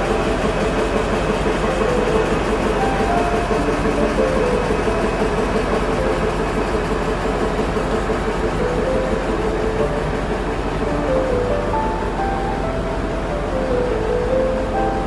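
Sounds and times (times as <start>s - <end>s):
train engine and running noise: 0.0s - 15.0s.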